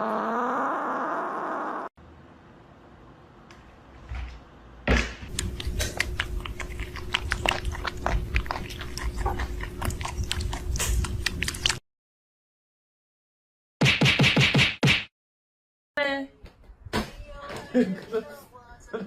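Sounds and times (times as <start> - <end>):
pet chewing and crunching: 5.3 - 11.8.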